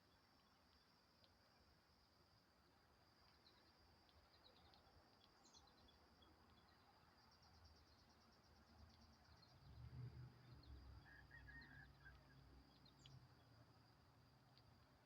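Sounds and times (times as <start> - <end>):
faint bird chirps: 3.3 - 13.3.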